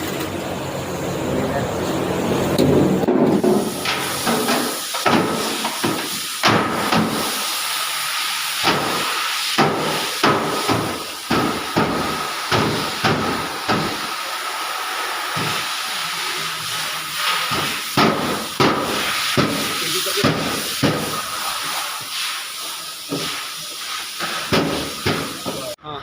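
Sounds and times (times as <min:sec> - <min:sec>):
hammer knocking on sheet metal: 0:02.6 - 0:07.2, 0:08.6 - 0:09.0, 0:09.6 - 0:14.0, 0:17.5 - 0:21.2, 0:24.5 - 0:25.7
steady hiss: 0:03.2 - 0:25.8.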